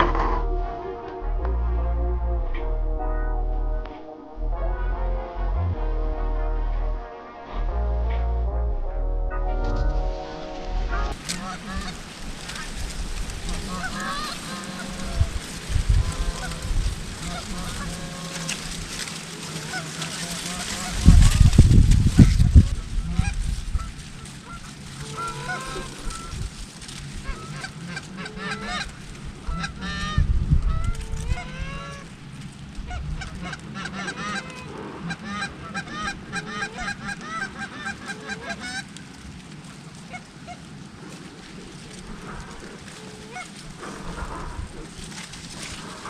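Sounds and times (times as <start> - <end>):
low rumble: 0.0 - 19.0, 32.7 - 33.7
geese honking: 0.0 - 32.2, 32.8 - 39.0, 41.4 - 46.0.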